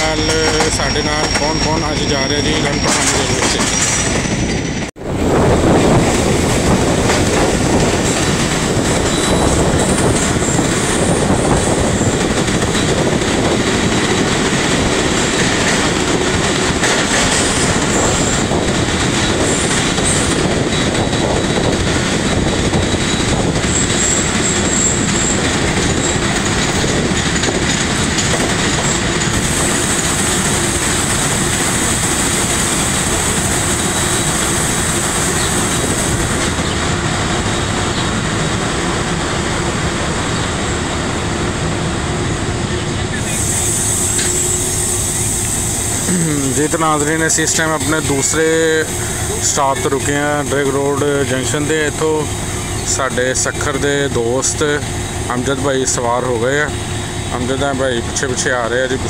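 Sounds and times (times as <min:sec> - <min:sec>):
high wheel squeal: 0:00.0 - 0:04.8, 0:08.9 - 0:13.1, 0:23.0 - 0:27.5, 0:42.7 - 0:53.1
train wheels rumbling on rails: 0:00.0 - 0:59.0.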